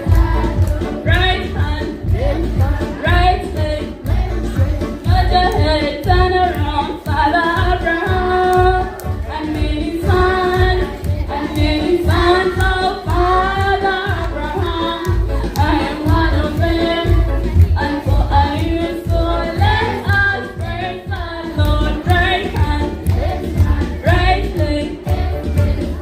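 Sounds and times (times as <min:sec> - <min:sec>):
group of voices singing: 0:00.0 - 0:26.0
steady beat: 0:00.0 - 0:26.0.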